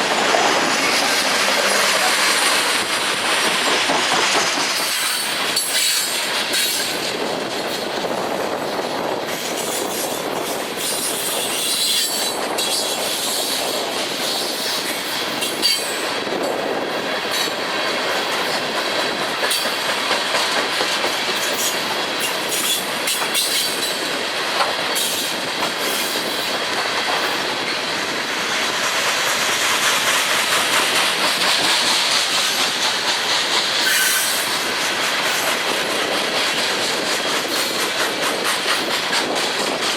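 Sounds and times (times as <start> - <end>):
freight train cars rolling past: 0.0 - 39.9
steel wheel squeal: 10.8 - 13.6, 14.3 - 16.0, 21.5 - 24.0, 33.8 - 34.6
wheels clicking over rail joints: 28.6 - 39.9.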